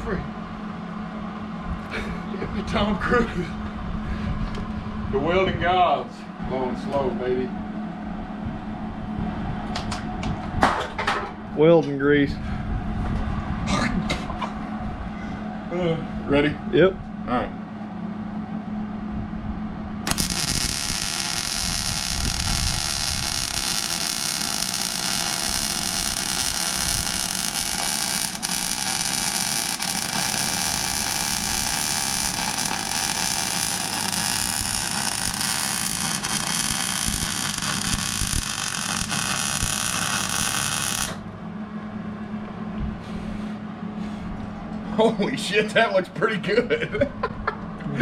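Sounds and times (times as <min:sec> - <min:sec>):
electrical hum: 0:00.0 - 0:48.0
welding arc hissing: 0:20.1 - 0:41.2.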